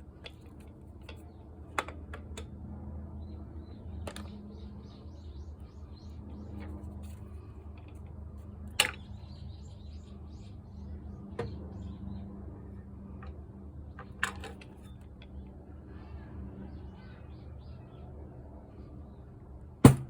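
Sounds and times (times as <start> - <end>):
tools and parts clicking: 0.1 - 2.5, 13.2 - 15.4.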